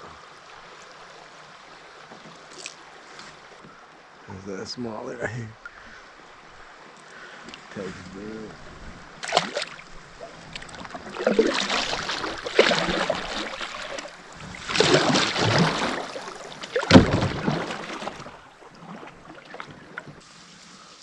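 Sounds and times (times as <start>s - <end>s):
paddle splashing in water: 9.1s - 21.0s.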